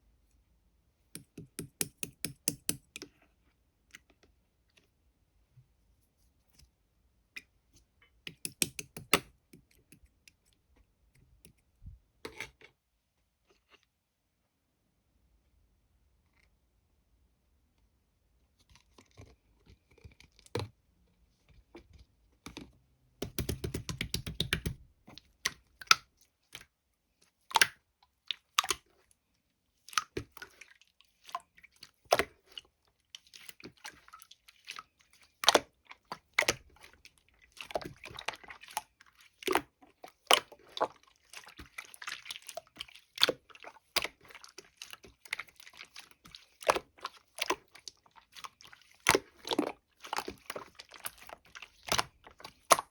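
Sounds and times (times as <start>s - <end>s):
slime squished by hand: 33.2s - 52.9s.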